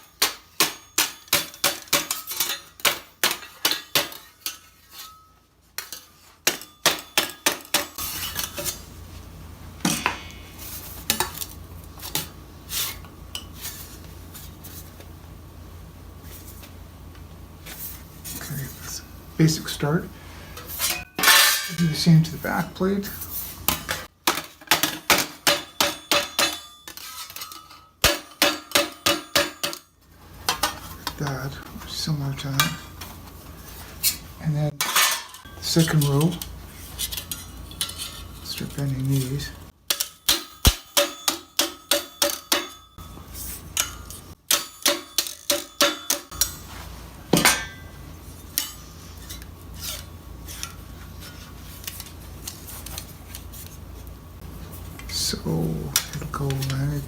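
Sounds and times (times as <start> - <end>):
hammer striking steel plate: 0.0 - 4.2, 9.8 - 10.6, 25.1 - 29.9, 39.9 - 43.2, 43.8 - 46.7.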